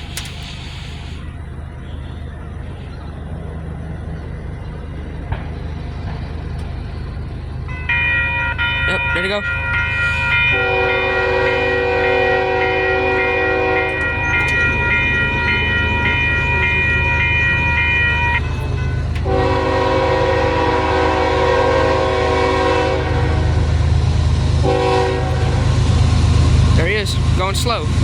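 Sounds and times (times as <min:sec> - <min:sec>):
passing train rumble: 0:00.0 - 0:28.0
locomotive air horn blasts: 0:07.8 - 0:23.8, 0:24.6 - 0:25.8.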